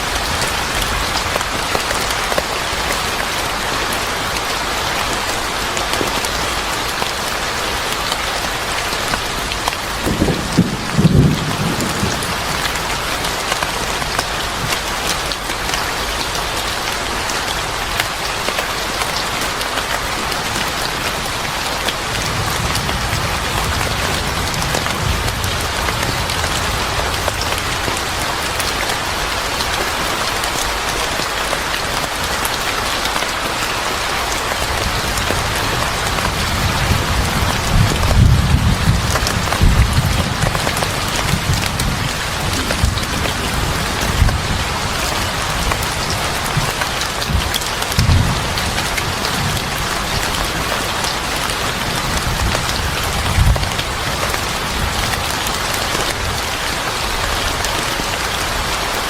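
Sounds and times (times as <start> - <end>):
rain pouring: 0.0 - 59.0
low rumble of thunder: 9.8 - 13.1, 34.7 - 50.8.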